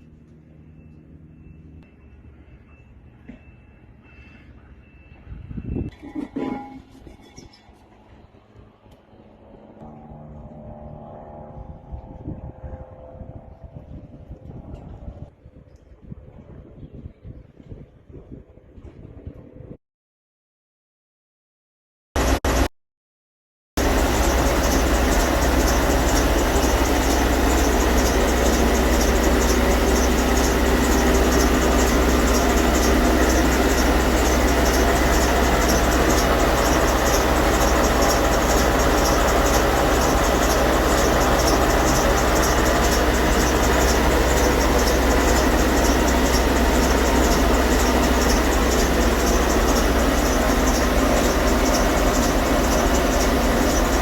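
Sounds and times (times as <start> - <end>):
boat engine droning: 0.0 - 15.5, 22.2 - 22.7, 23.8 - 54.0
water rushing hiss: 23.8 - 54.0.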